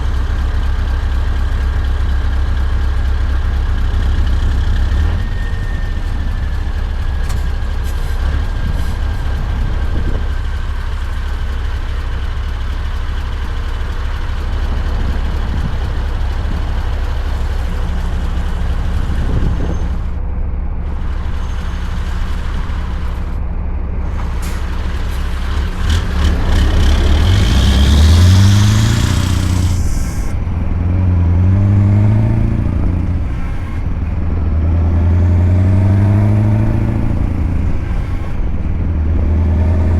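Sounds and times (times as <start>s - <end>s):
truck engine running: 0.0s - 39.9s
rising whistle: 5.0s - 7.0s
hiss: 28.5s - 30.3s.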